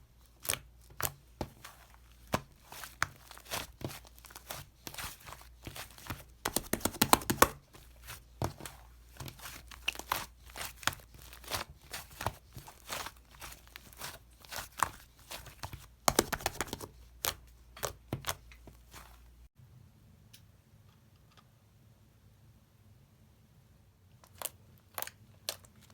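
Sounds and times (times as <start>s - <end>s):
slime squishing with sticky pops: 0.3s - 19.2s.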